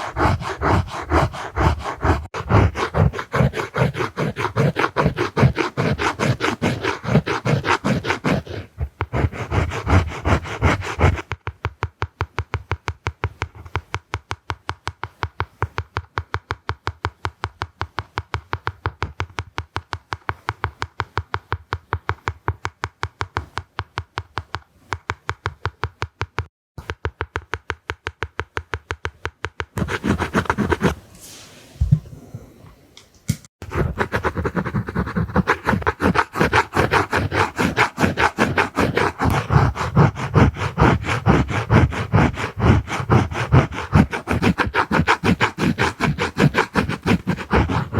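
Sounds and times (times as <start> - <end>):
drawing tool scratching surface: 0.0 - 11.8, 13.2 - 14.2, 29.8 - 32.0, 33.6 - 47.9.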